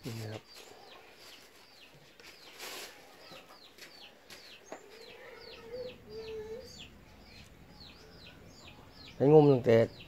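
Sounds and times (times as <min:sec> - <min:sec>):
small birds chirping: 0:00.0 - 0:10.0
noisy rustle: 0:01.2 - 0:03.2.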